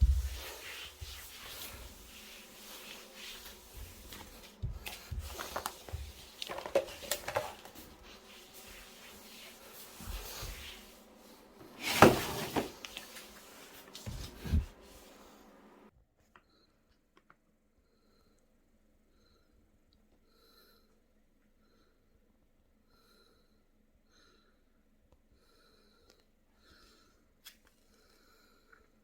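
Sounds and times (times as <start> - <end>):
rustling: 0.0 - 15.2.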